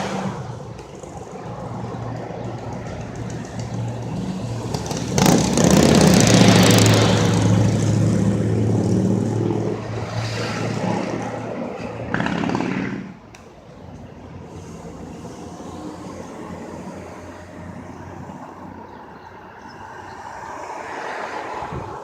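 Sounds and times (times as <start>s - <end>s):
fire engine driving past: 0.0s - 13.3s.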